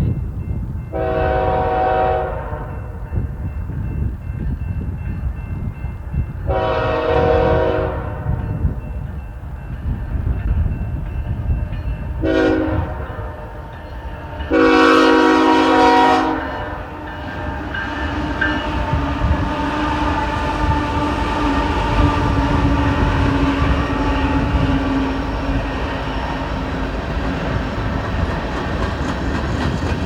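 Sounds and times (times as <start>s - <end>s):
train engine rumble and hum: 0.0s - 30.0s
train wheel noise: 0.0s - 30.0s
locomotive horn blasts: 0.9s - 3.0s, 6.5s - 8.4s, 12.2s - 13.6s, 14.5s - 25.4s.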